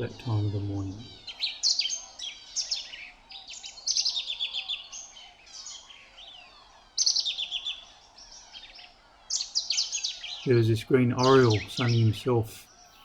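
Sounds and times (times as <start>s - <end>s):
bird singing rapid notes: 0.0s - 13.0s
other birds calling faintly: 0.0s - 13.0s.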